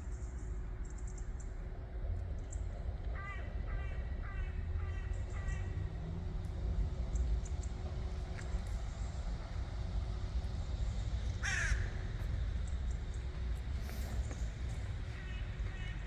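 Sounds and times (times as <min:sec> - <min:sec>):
low background rumble: 0:00.0 - 0:16.0
crow cawing: 0:03.2 - 0:05.8, 0:11.4 - 0:12.0, 0:15.2 - 0:16.0.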